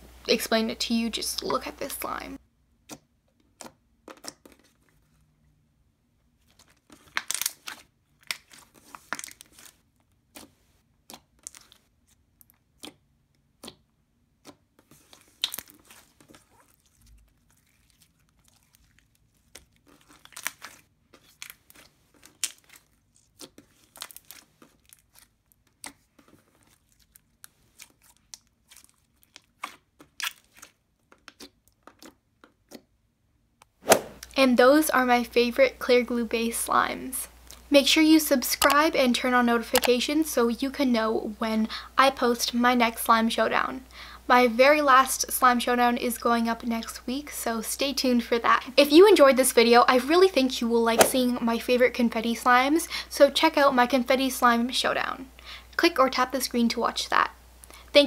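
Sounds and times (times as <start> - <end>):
slime clicking and crackling: 6.4 - 33.0.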